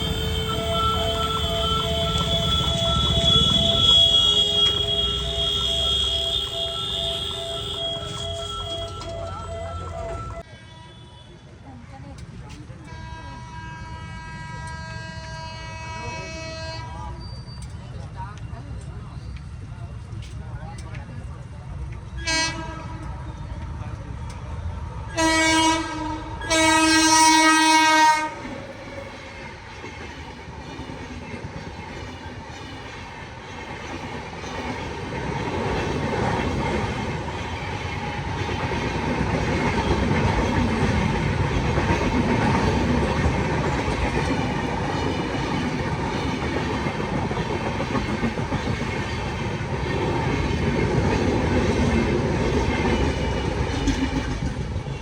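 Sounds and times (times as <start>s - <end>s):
train rumbling over rails: 0.0s - 10.5s, 11.6s - 55.0s
train horn blasts: 0.0s - 11.3s, 12.9s - 17.2s, 22.2s - 23.2s, 25.2s - 28.6s.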